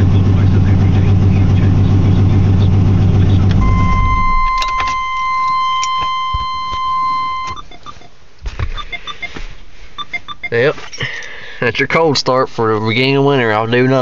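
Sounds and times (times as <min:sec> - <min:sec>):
v eight engine shutting off: 0:00.0 - 0:07.5
clicks: 0:03.4 - 0:07.6
electronic warning tone: 0:03.6 - 0:08.0.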